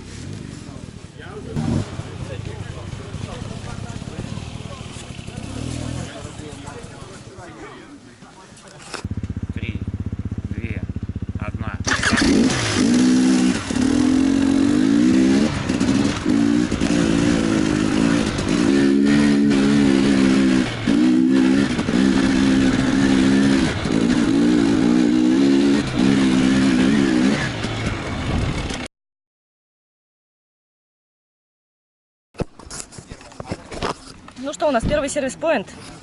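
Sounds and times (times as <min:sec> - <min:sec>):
motorcycle engine revving: 0:00.0 - 0:07.4, 0:08.8 - 0:28.9.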